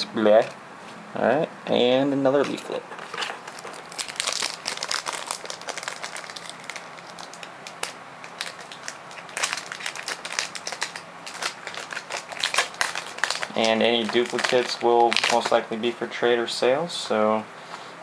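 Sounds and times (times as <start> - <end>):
foil wrapper crinkling: 3.1 - 15.9.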